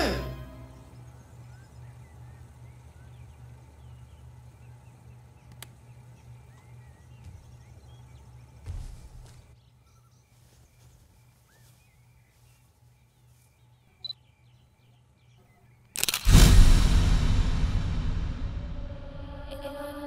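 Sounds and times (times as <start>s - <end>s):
small birds chirping: 0.0s - 16.2s
low steady hum: 0.0s - 20.0s
sharp click: 15.9s - 17.0s.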